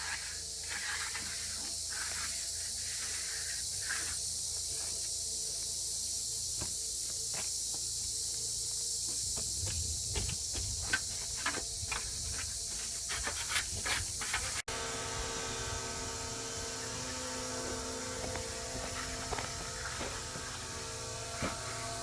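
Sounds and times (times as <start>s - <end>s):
machine hum with even tones: 0.0s - 22.0s
steady hiss: 0.0s - 22.0s
knocks and scrapes of hand work: 10.2s - 14.7s, 18.2s - 20.6s.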